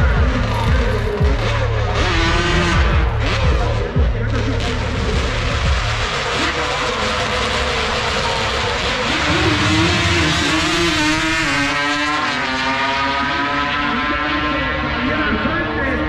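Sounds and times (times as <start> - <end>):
race car engine at high revs: 0.0 - 16.0
rushing background noise: 0.0 - 16.0.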